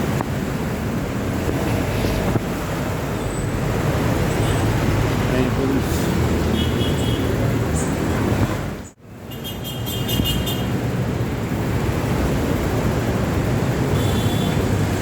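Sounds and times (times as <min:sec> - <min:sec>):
wind rumbling on microphone: 0:00.0 - 0:08.9
road traffic noise: 0:00.0 - 0:15.0.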